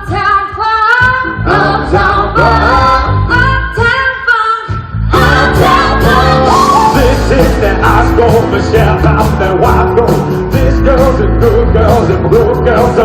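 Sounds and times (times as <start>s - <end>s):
band playing funk-pop song: 0.0s - 13.0s
bass line: 1.0s - 4.1s, 4.7s - 13.0s
person singing: 5.2s - 13.0s.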